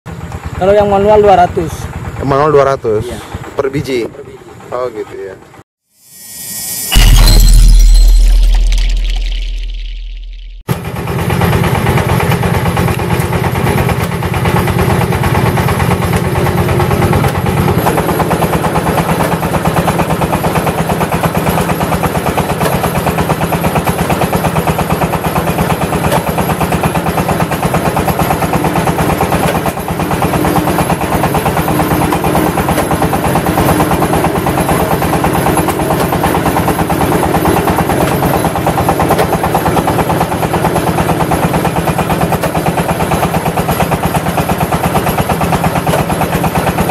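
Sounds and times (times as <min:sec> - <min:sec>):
brick press engine pulsing: 0:11.8 - 0:46.9.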